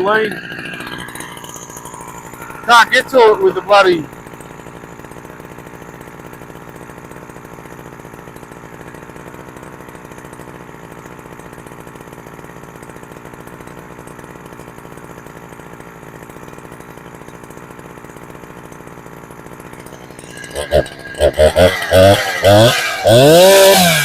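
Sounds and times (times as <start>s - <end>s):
chainsaw engine running steadily: 0.0s - 24.0s.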